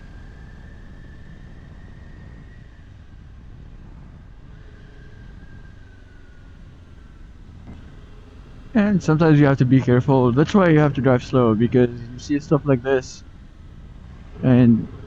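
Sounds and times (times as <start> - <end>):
faint thin whine: 0.0 - 15.0
wind noise on microphone: 0.0 - 15.0.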